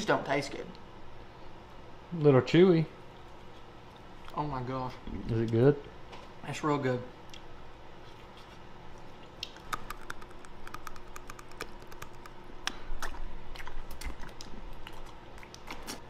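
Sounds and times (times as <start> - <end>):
man chewing with wet mouth clicks: 8.9 - 16.0.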